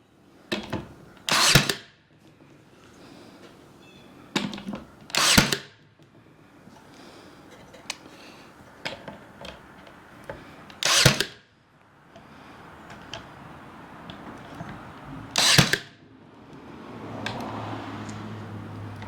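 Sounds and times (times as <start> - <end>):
nail gun firing: 1.3 - 1.9, 5.1 - 5.8, 10.8 - 11.4, 15.3 - 15.9.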